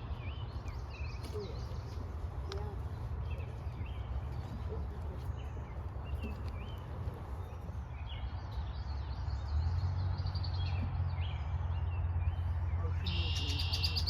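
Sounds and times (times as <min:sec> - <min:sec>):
songbirds chirping and singing: 0:00.0 - 0:14.0.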